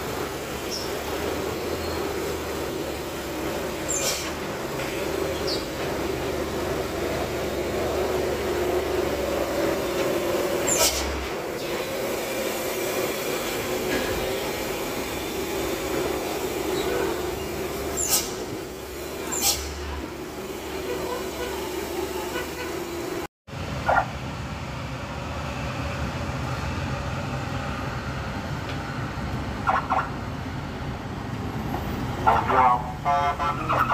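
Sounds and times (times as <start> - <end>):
bus engine and road drone: 0.0 - 33.9.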